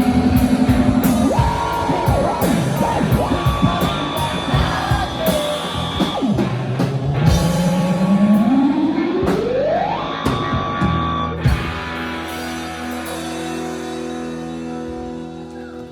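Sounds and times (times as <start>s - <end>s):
drum hits: 0.0s - 8.3s
rock band ringing chord: 0.0s - 15.6s
electric guitar pitch slide: 0.0s - 15.9s.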